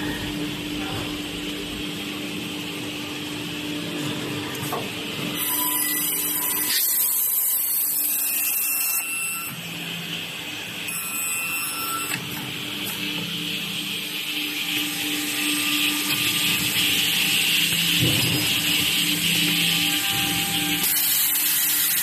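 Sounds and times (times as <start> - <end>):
machine motor running: 12.5 - 22.0.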